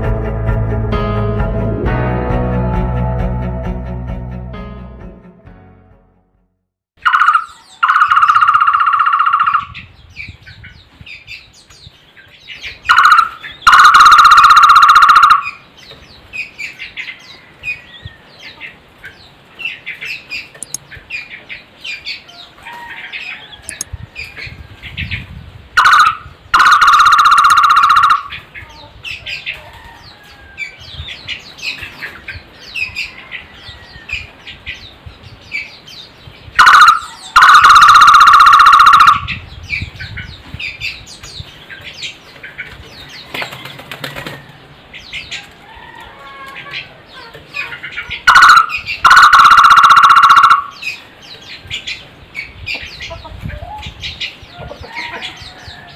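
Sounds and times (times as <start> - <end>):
barbet calling with trill: 7.0 - 9.9, 12.8 - 15.6, 25.8 - 28.5, 36.6 - 39.4, 47.6 - 51.0
small birds chirping: 7.0 - 14.2, 15.2 - 26.8, 27.4 - 38.1, 38.9 - 45.7, 50.5 - 55.9.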